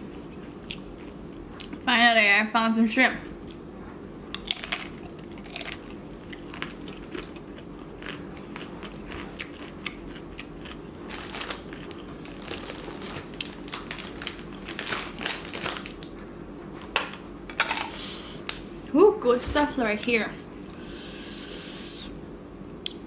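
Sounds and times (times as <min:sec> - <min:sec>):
person chewing with crunching: 0:00.0 - 0:01.8, 0:03.4 - 0:16.2
crisp tostada crackling: 0:04.4 - 0:16.2.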